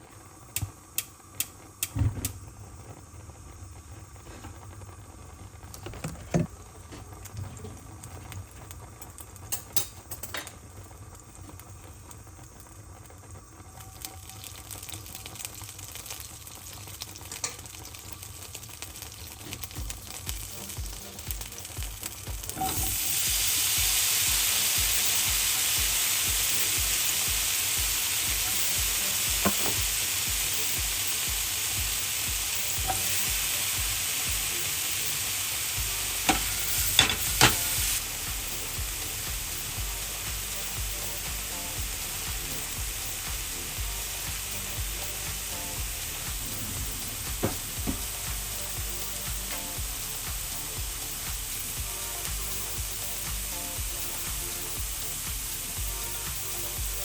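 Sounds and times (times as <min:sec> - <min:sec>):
mushrooms sizzling in a skillet: 0:00.0 - 0:57.0
pan and utensil clicks: 0:09.0 - 0:10.6, 0:17.3 - 0:17.9, 0:29.4 - 0:30.0, 0:32.6 - 0:33.3, 0:36.2 - 0:37.8.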